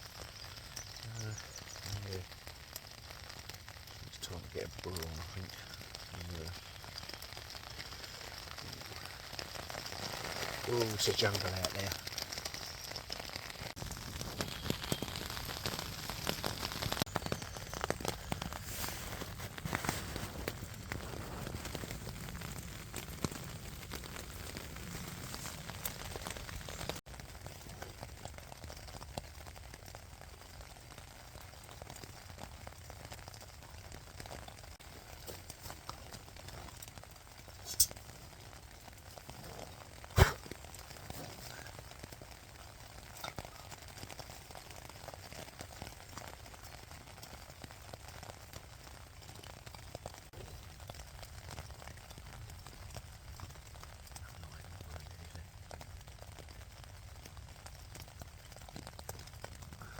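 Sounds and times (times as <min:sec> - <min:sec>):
raindrops ticking on surface: 0:00.0 - 0:59.9
steady rain: 0:00.0 - 0:59.9.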